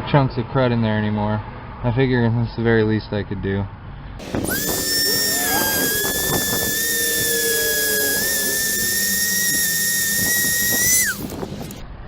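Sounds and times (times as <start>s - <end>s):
rotary tool whining: 4.2s - 11.8s.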